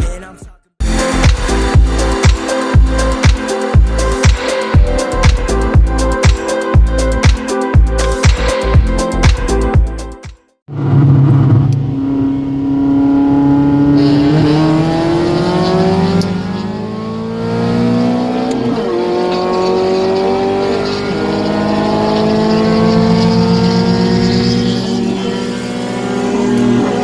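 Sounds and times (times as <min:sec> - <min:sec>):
car engine accelerating: 0:10.7 - 0:27.0.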